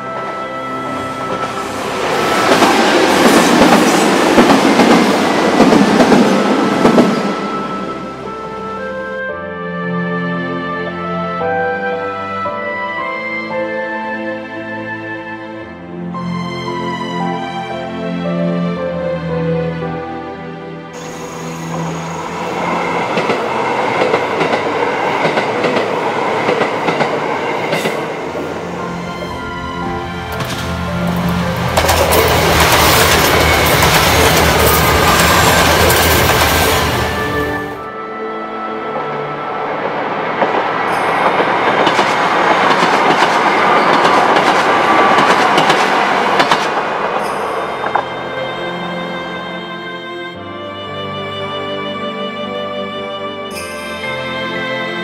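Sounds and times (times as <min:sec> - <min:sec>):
train rushing rumble: 0:00.0 - 0:08.8, 0:21.0 - 0:37.9, 0:39.0 - 0:49.3.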